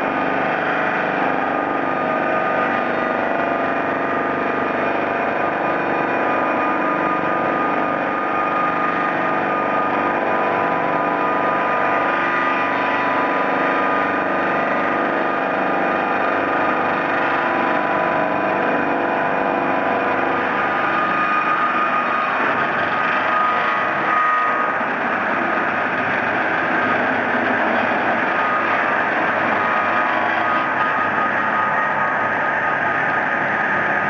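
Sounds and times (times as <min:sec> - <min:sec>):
circular saws whining: 0:00.0 - 0:34.0
sawmill machine drone: 0:00.0 - 0:34.0.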